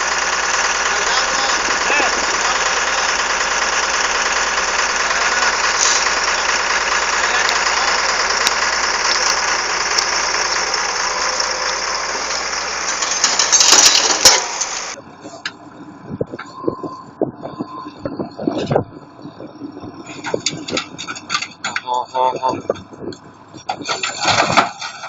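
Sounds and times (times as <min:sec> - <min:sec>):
dense rattle: 0:00.0 - 0:25.0
heavy equipment engine running: 0:00.0 - 0:25.0.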